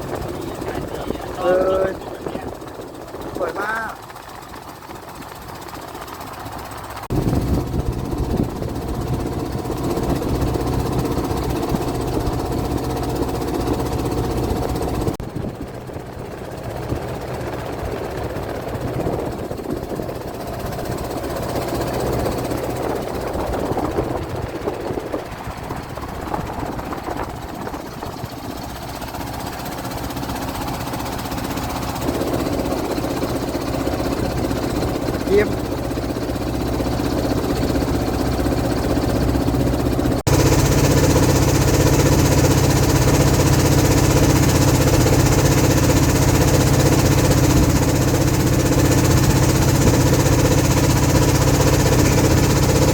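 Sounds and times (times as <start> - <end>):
boat engine knocking: 0.0 - 52.9.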